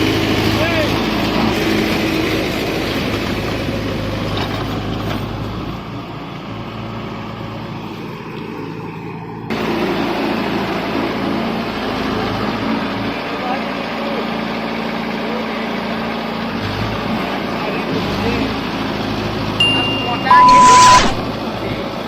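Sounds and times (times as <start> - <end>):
diesel tractor engine running: 0.0 - 20.0.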